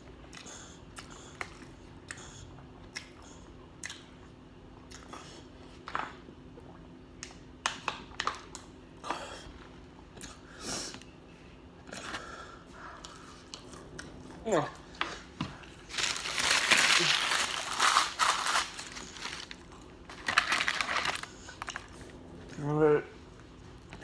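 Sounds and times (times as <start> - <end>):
low steady hum: 0.0 - 24.0
person chewing and smacking: 0.2 - 9.2, 12.9 - 14.4
crisp crunches: 15.8 - 22.0.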